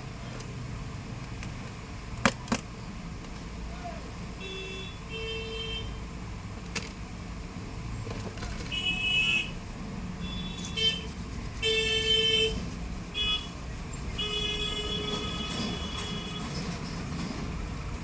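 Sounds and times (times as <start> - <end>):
road traffic: 0.0 - 18.0
vehicle horn toots: 4.4 - 6.0, 8.7 - 9.6, 10.2 - 16.6.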